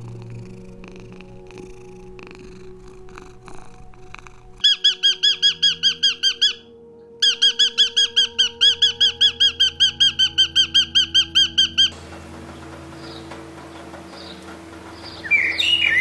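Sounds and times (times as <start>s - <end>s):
soft low rumble: 0.0s - 5.0s
young bird peeping: 4.6s - 12.0s.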